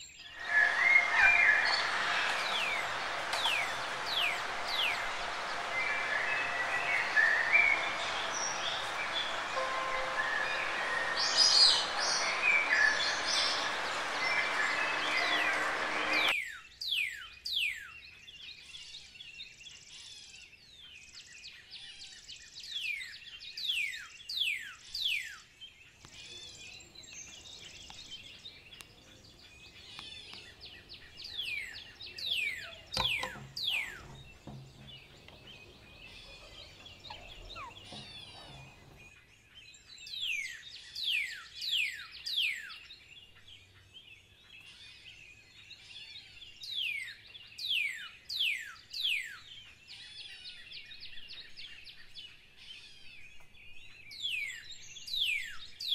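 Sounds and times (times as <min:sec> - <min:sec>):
bird whistles sliding downward: 0:00.2 - 0:16.4, 0:31.4 - 0:39.0
soft bird chirping: 0:26.0 - 0:39.2.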